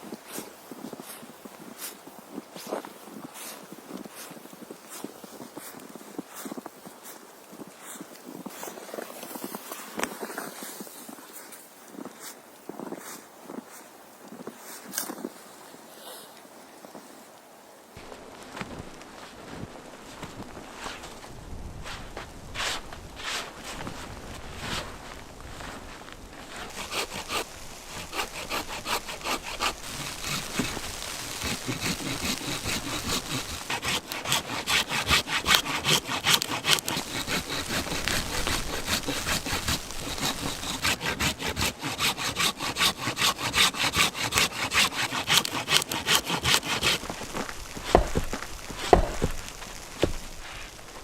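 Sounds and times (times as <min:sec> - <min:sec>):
hand saw cutting wood: 0:26.4 - 0:51.0.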